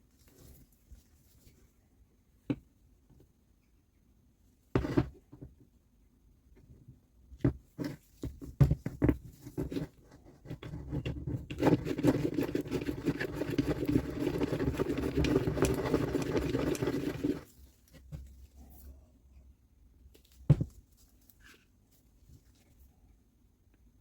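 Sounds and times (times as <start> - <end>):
rough rubbing or scraping: 10.8 - 17.6.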